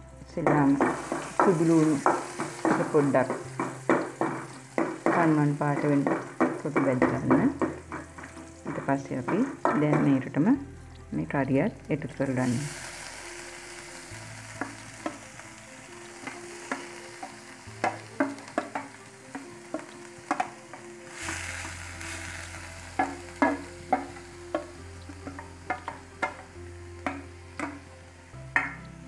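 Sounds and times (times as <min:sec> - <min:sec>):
vegetables sizzling in hot oil: 0:00.0 - 0:29.0
spoon knocking against a pot: 0:00.5 - 0:10.2, 0:27.0 - 0:27.8.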